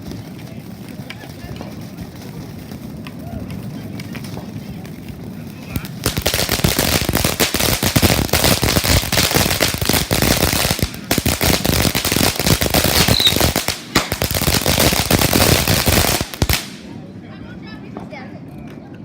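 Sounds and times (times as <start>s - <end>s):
firecrackers popping: 0.0s - 17.1s.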